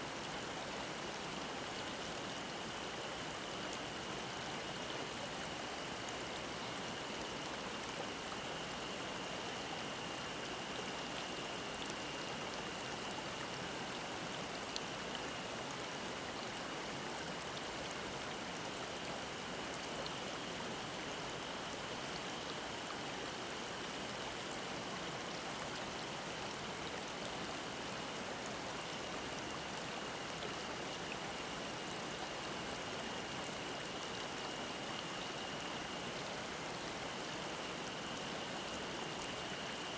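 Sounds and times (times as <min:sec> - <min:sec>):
stream rushing water: 0:00.0 - 0:39.9
cicada drone: 0:18.1 - 0:39.9.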